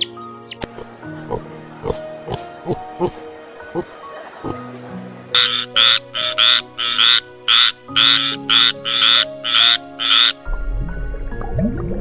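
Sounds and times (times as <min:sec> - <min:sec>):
background music: 0:00.0 - 0:12.0
animal making rasping calls: 0:05.4 - 0:10.4.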